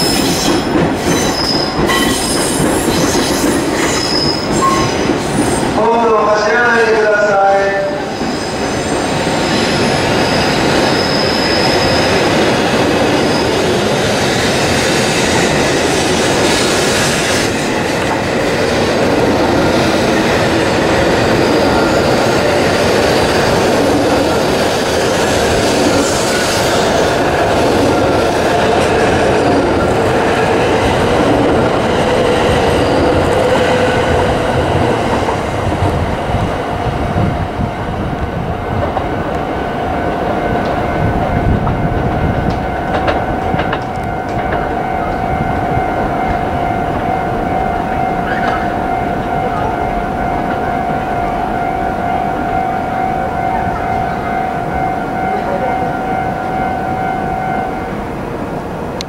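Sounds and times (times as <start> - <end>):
train wheels squealing on rails: 0.0 - 5.8, 7.9 - 18.4, 48.1 - 49.7
train rumbling: 0.0 - 59.0.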